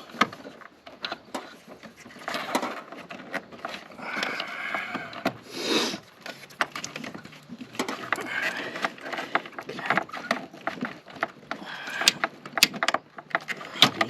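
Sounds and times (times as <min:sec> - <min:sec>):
hose rubbing scrapes: 0:03.7 - 0:07.2
plastic hose clicks and knocks: 0:06.2 - 0:14.0.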